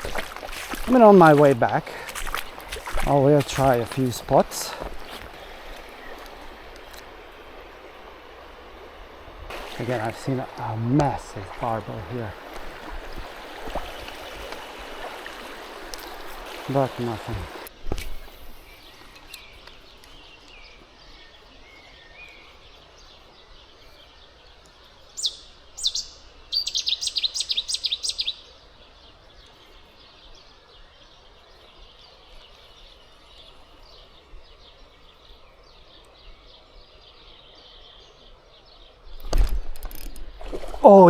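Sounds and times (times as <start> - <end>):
outdoor ambience: 0.0 - 41.0
bird calling: 23.4 - 31.3.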